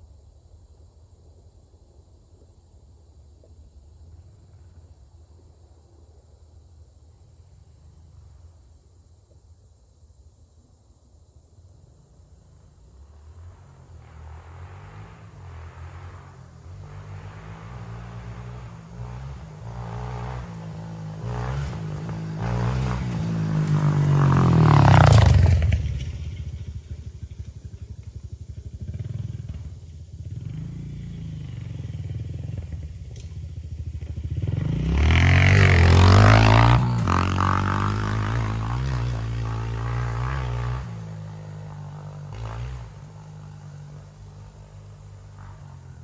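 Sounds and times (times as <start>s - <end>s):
motorcycle engine revving: 13.0s - 46.0s.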